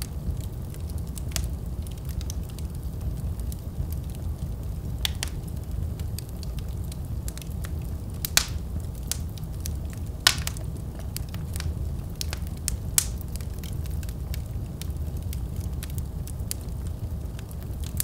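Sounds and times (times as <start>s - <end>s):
fire crackling and popping: 0.0s - 18.0s
fire rumbling: 0.0s - 18.0s.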